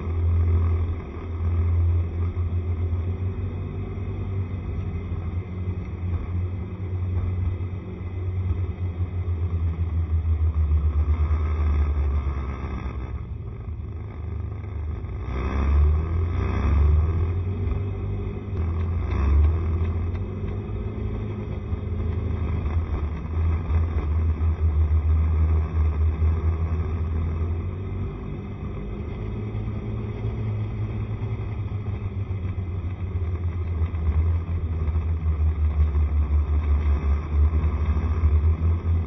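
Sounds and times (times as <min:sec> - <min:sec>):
low pulsing rumble: 0:00.0 - 0:39.0
scooter engine running: 0:00.0 - 0:39.0.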